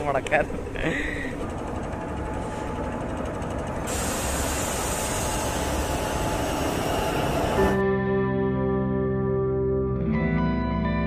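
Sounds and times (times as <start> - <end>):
electric locomotive rumble: 0.0 - 7.8.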